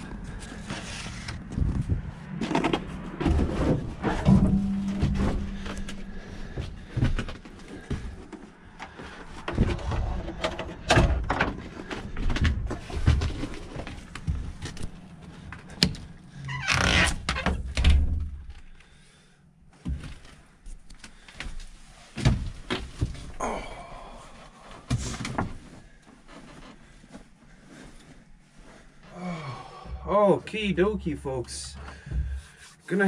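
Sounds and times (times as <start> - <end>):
low hum: 0.0 - 8.9
objects knocking and rattling: 1.5 - 14.5.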